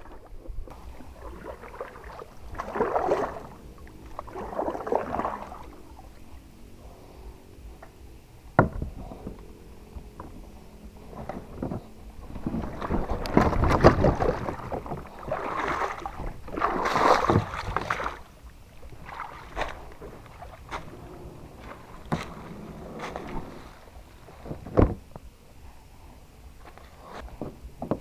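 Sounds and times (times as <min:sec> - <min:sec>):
water splashing and sloshing: 0:00.0 - 0:25.6
knocks against kayak hull: 0:08.6 - 0:09.4.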